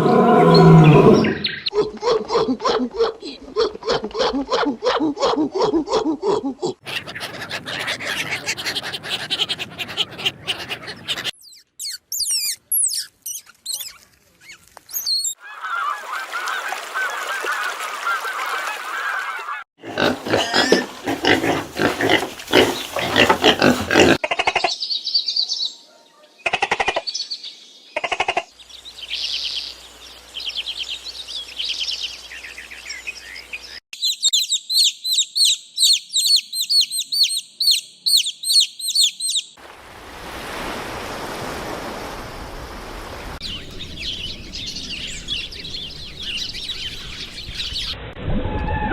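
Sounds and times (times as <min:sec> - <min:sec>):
animal calls: 0:00.0 - 0:24.7.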